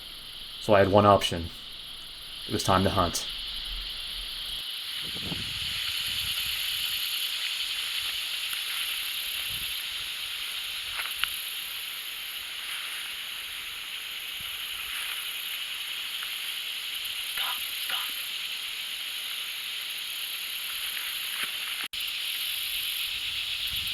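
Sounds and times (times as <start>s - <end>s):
insect chorus: 0.0s - 23.9s.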